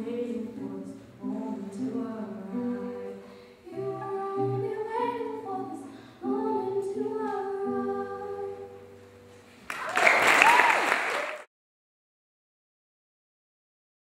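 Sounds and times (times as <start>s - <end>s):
woman singing: 0.0s - 8.8s.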